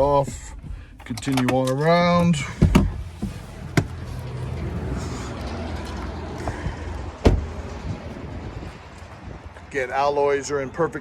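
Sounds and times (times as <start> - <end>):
low wind rumble on microphone: 2.6 - 9.9
loud thump: 7.2 - 7.6.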